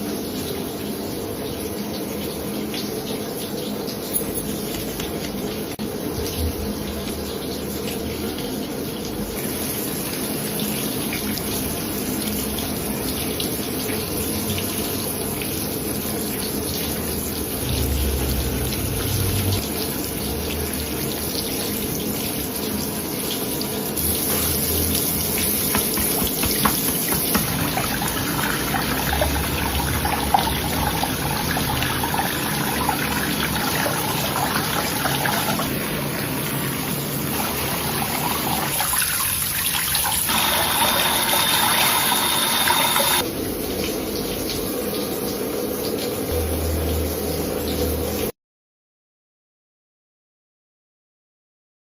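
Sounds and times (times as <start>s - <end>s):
tap water running into sink: 1.7s - 48.3s
short knocks: 25.7s - 27.9s.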